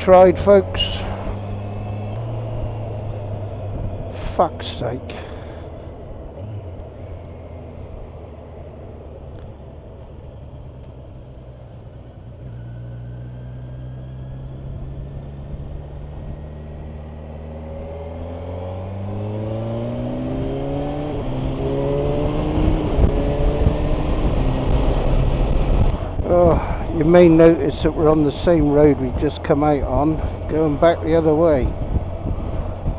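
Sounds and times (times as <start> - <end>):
motorcycle engine accelerating: 0.0 - 32.9
wind noise: 19.1 - 32.9.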